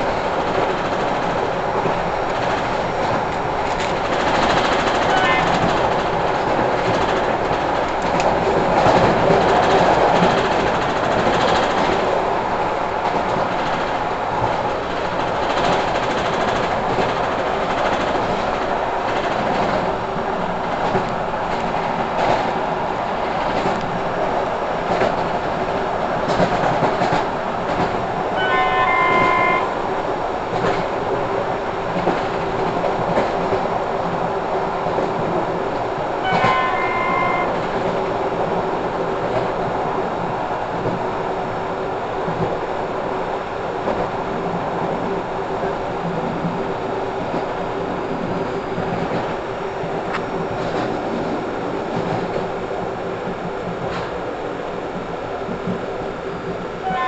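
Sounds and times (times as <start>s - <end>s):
wheels clicking over rail joints: 0.0s - 29.7s
train rolling noise: 0.0s - 57.0s
train horn blasts: 5.0s - 5.7s, 28.4s - 29.8s, 36.2s - 37.6s.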